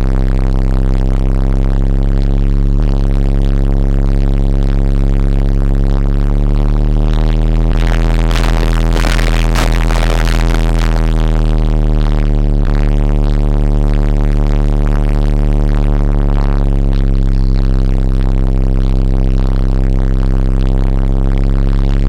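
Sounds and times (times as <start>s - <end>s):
loud electronic music with deep bass: 7.8s - 11.2s.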